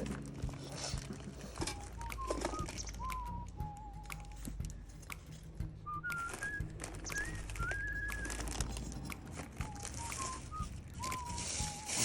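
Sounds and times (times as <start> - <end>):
campfire crackling: 0.0 - 12.0
person whistling a tune: 1.6 - 4.8, 5.8 - 8.7, 9.5 - 12.0.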